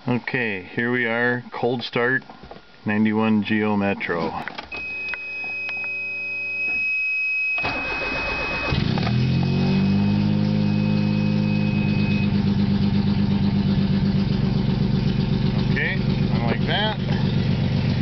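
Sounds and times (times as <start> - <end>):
faint steady high tone: 4.7 - 8.8, 9.5 - 12.5
car engine cranking and idling: 7.6 - 18.0
fast even engine ticking: 7.8 - 18.0.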